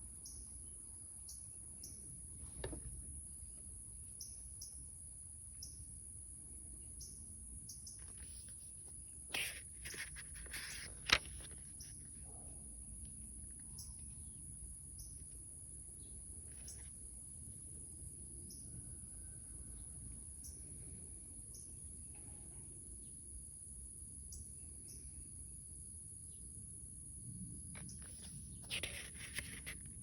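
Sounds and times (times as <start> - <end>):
faint clicks and rustles: 2.4 - 3.1, 8.0 - 12.0, 27.8 - 30.0.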